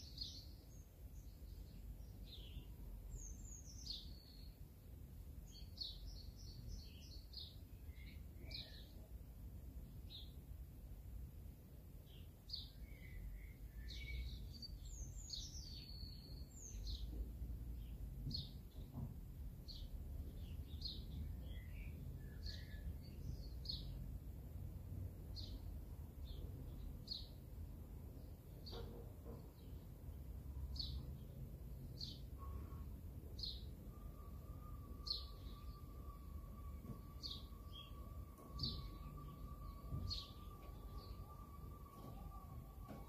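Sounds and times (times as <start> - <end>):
bird chirping: 0.0 - 10.5, 12.0 - 24.2, 25.2 - 43.0
faint steady tone: 32.3 - 43.0.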